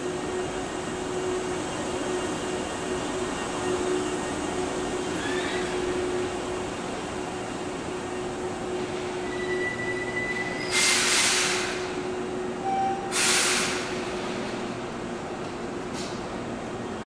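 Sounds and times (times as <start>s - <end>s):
electric train rumble: 0.0s - 17.0s
faint high squeal: 5.1s - 6.0s, 9.2s - 11.0s
compressed air hiss: 10.7s - 12.0s, 13.1s - 14.1s.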